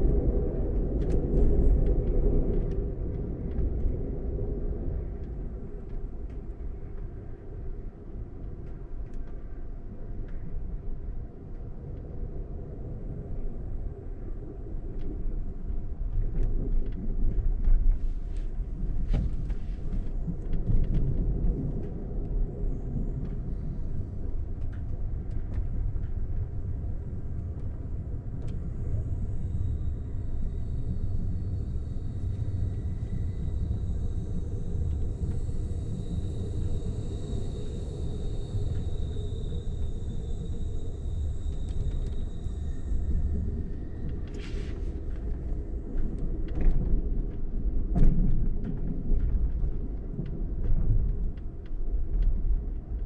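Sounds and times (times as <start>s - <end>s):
train rumble from inside coach: 0.0s - 53.0s
faint high steady whine: 17.6s - 47.1s.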